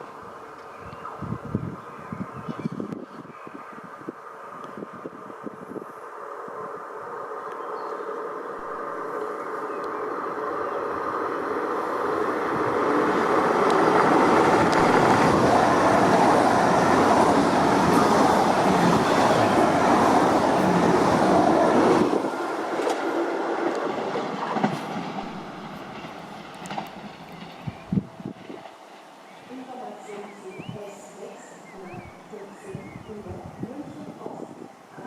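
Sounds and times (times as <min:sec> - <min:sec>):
train passing on tracks: 0:00.0 - 0:35.0
train wheels clacking: 0:22.8 - 0:27.7.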